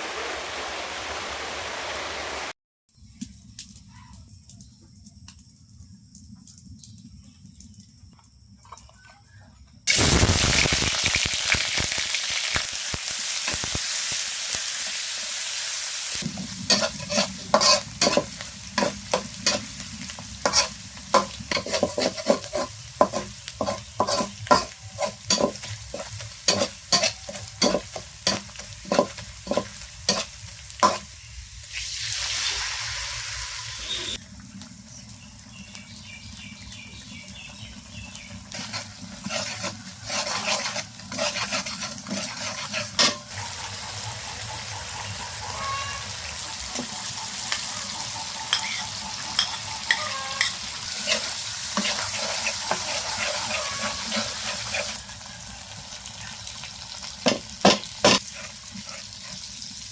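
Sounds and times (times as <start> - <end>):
food sizzling in hot oil: 0.0 - 2.5, 9.9 - 59.9
spatula scraping a pan: 16.4 - 31.1, 38.4 - 44.2, 45.1 - 55.2, 57.2 - 59.9.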